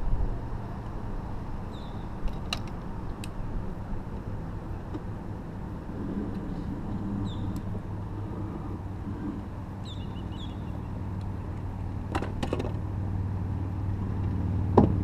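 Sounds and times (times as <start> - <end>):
engine rumbling: 0.0 - 15.0
bird chirps: 1.6 - 2.1, 7.2 - 7.6, 9.8 - 11.6.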